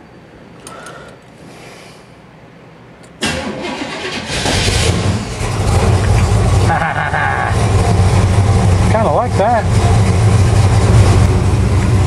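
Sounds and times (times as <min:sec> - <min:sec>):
pickup engine cranking and running: 0:03.2 - 0:12.0.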